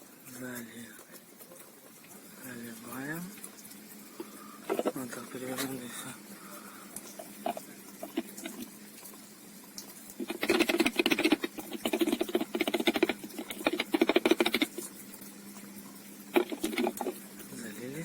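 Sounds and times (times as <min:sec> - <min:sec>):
liquid glugging from bottle: 0:04.2 - 0:05.8, 0:07.0 - 0:08.8.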